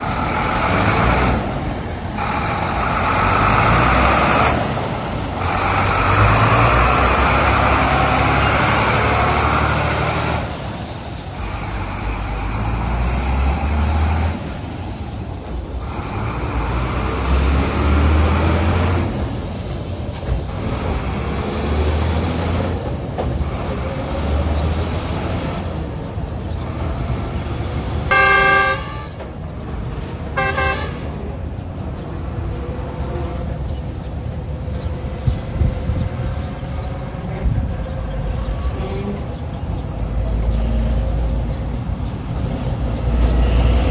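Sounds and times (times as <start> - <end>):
heavy truck engines running: 0.0 - 43.9
vehicle horn: 28.1 - 29.2, 30.4 - 31.2.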